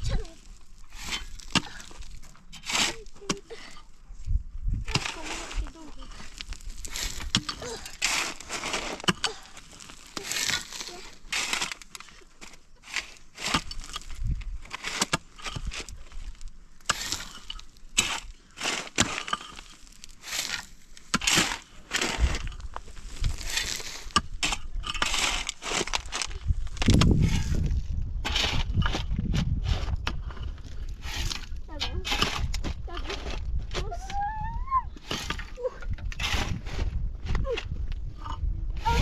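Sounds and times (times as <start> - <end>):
crunching and cracking: 6.0 - 33.6.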